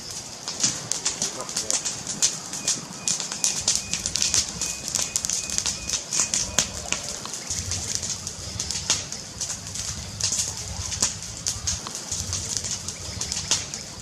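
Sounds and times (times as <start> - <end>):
bird singing high chirps: 2.6 - 6.8.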